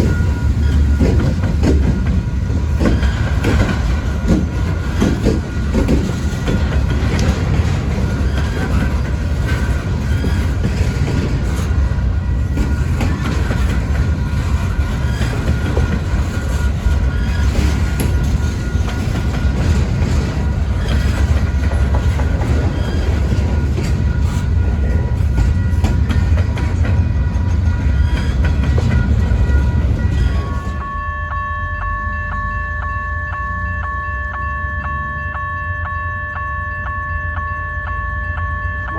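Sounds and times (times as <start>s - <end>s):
wheels clacking over rail joints: 0.0s - 30.8s
wheel squeals: 0.0s - 30.9s
train cars rumbling past: 0.0s - 38.9s.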